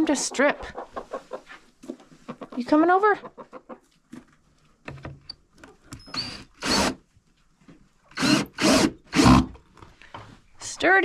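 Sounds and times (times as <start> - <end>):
cordless drill driving screws: 5.9 - 7.0, 8.1 - 9.6.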